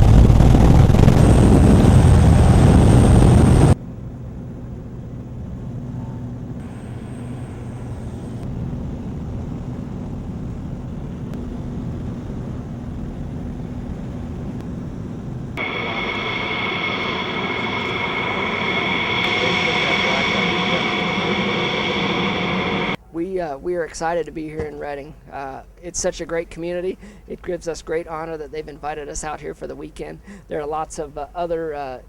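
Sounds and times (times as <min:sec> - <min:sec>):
aircraft engine hum: 0:00.0 - 0:23.0
aircraft engine rushing: 0:15.6 - 0:23.0
high whine: 0:15.6 - 0:23.0.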